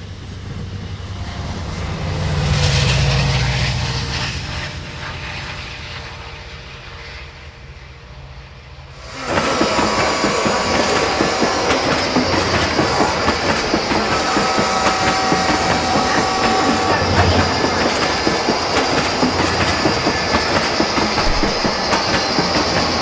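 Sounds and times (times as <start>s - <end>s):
low train rumble: 0.0s - 23.0s
steady whining tones: 0.1s - 23.0s
model train wheels clicking on rails: 9.0s - 23.0s.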